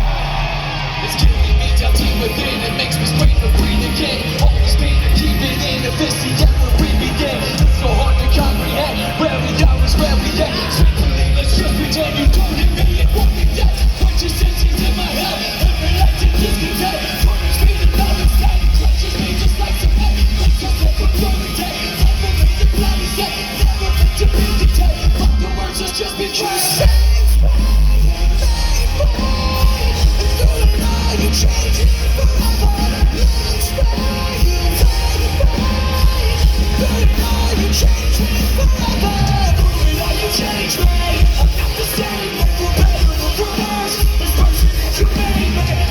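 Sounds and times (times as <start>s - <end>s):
live rock band playing: 0.0s - 45.9s
vocals: 0.0s - 45.9s
booming bass and drums: 9.4s - 25.7s.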